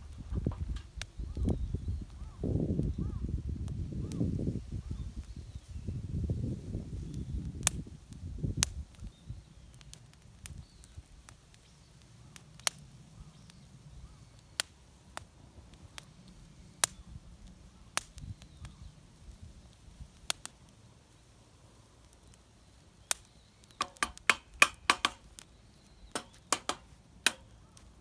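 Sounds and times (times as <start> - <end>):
sharp clicks or pops: 23.8 - 25.5, 26.1 - 27.8.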